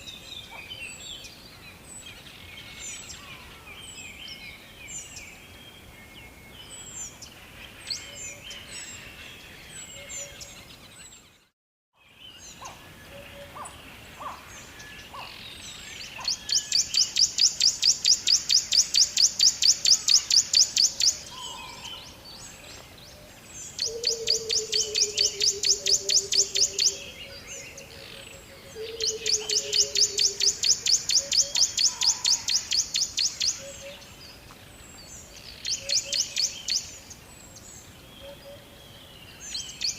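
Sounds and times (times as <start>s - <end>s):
birds chirping and calling: 12.1s - 39.9s
rapid pulsed bird trill: 23.8s - 27.2s, 28.4s - 33.8s.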